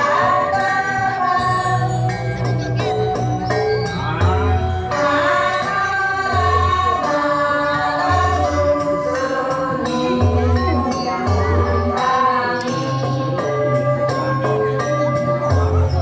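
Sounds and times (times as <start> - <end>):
group singing: 0.0 - 1.9, 4.9 - 10.5, 11.1 - 13.9
instrumental accompaniment: 0.0 - 16.0.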